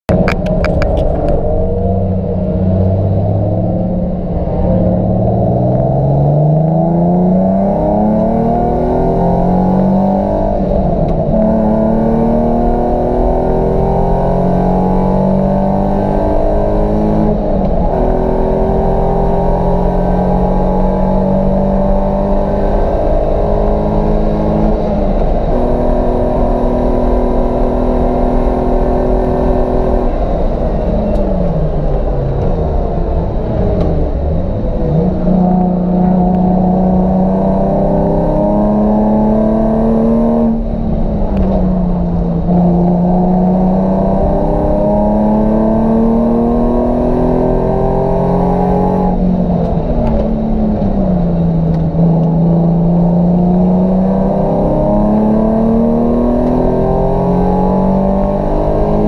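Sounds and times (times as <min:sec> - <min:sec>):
car engine revving hard: 0:00.2 - 0:31.2, 0:32.0 - 0:59.0.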